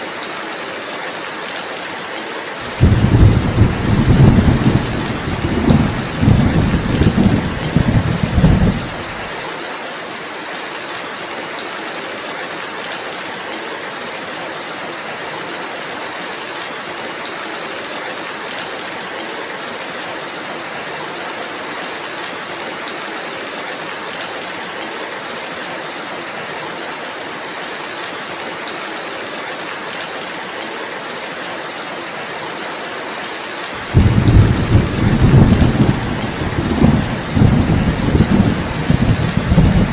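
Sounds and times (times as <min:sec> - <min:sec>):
steady rain falling: 0:00.0 - 0:39.9
thunder rumbling: 0:02.7 - 0:09.3, 0:33.8 - 0:39.9.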